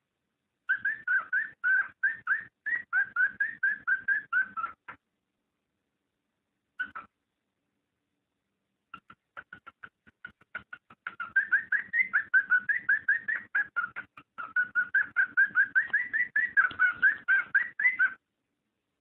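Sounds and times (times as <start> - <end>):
cockatiel chirping: 0.7 - 5.0, 6.8 - 7.1, 9.0 - 18.2.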